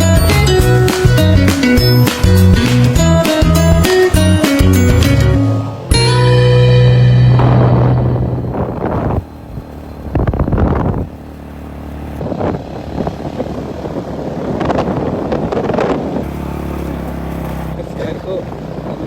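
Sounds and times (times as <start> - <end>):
vehicle running: 0.0 - 19.0
wind gusting on microphone: 7.3 - 11.2, 12.2 - 19.0.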